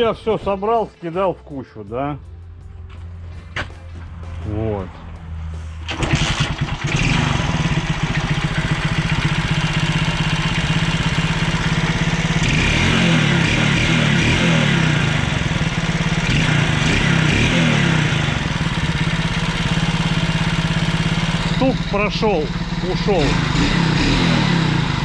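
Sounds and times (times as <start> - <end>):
moped engine revving: 5.8 - 25.0.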